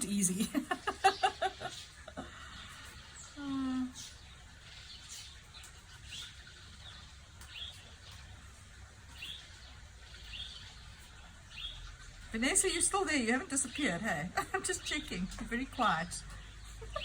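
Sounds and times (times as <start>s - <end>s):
small bird chirping: 0.0s - 12.2s.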